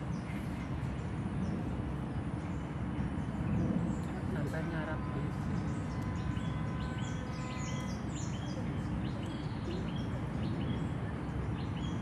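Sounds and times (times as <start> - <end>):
birds calling: 5.4 - 12.0.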